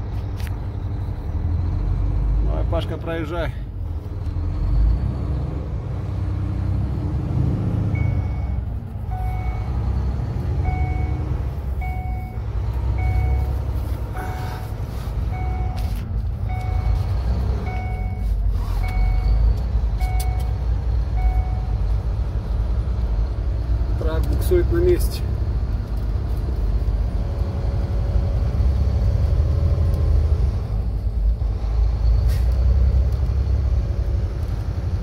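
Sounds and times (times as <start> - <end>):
truck diesel engine rumbling: 0.0 - 35.0
two-tone electronic beep: 8.0 - 9.7, 10.6 - 12.4, 17.7 - 18.3.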